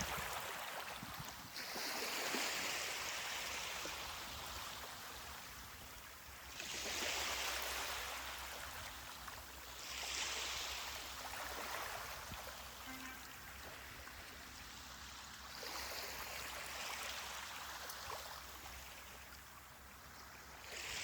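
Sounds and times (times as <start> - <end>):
ocean waves breaking: 6.5 - 18.8.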